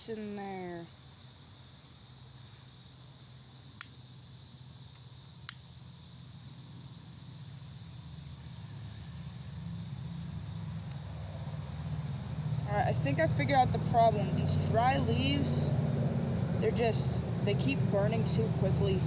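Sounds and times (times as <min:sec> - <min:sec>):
crickets chirping: 0:00.0 - 0:19.0
low hum: 0:08.4 - 0:19.0.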